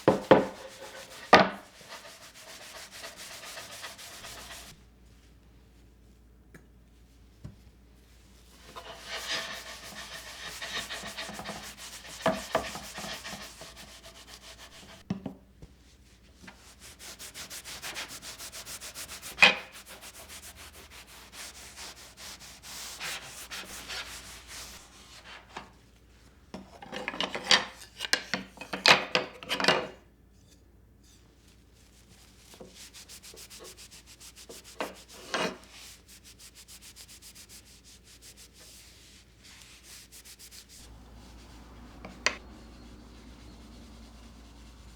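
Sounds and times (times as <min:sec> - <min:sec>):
scrubbing strokes: 0:00.0 - 0:04.8, 0:08.6 - 0:15.0, 0:16.6 - 0:25.5, 0:32.4 - 0:44.9.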